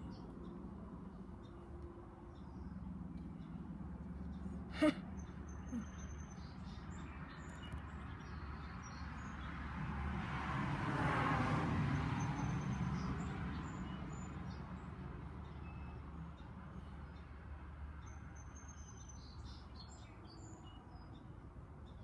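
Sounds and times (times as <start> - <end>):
vehicle passing by: 9.1 - 15.0.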